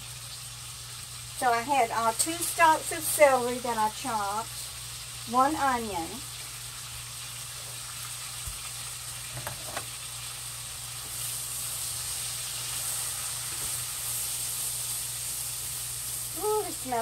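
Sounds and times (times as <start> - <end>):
vegetables sizzling in a skillet: 0.0 - 17.0.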